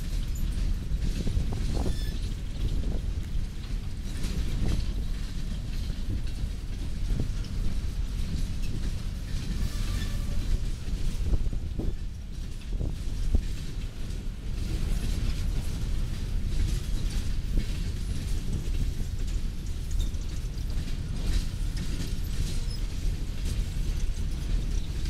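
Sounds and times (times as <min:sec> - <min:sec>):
train wheels rumbling on rails: 0:00.0 - 0:25.0
clanks and squeaks from couplers: 0:00.2 - 0:02.8, 0:08.6 - 0:10.6, 0:19.8 - 0:20.5, 0:21.2 - 0:25.0.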